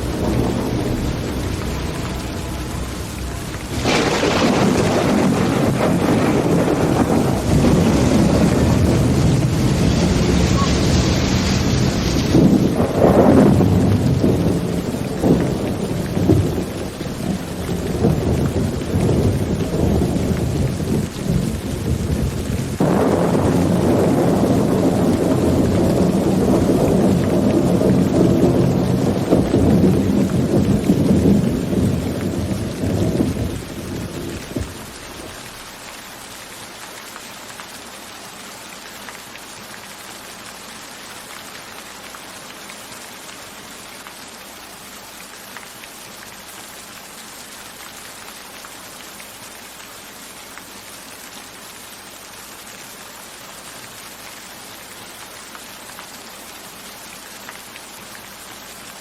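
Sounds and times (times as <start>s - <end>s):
thunder rumbling: 0.0s - 35.7s
heavy rain falling: 0.0s - 59.0s.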